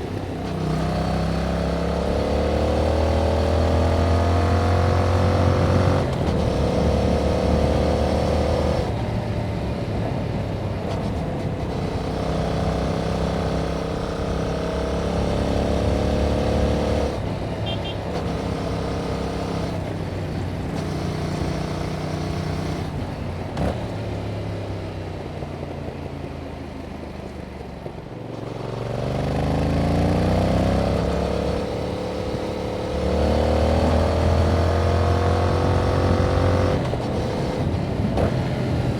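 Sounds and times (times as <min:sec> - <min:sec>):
motorcycle engine revving under load: 0:00.4 - 0:09.0, 0:28.4 - 0:38.9.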